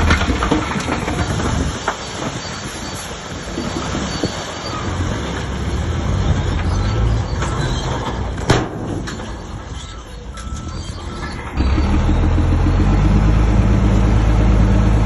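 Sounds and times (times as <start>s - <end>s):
steel tracks clattering and squealing: 0.0s - 5.6s, 6.2s - 12.4s
bulldozer diesel engine rumbling: 0.0s - 15.0s.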